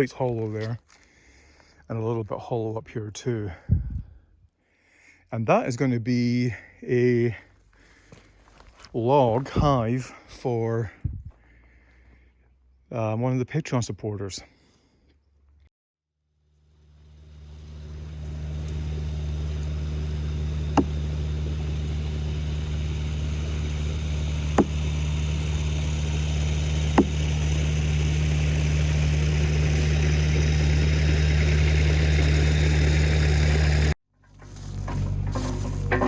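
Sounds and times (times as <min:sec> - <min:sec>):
chainsaw cutting through log: 0:16.8 - 0:33.9.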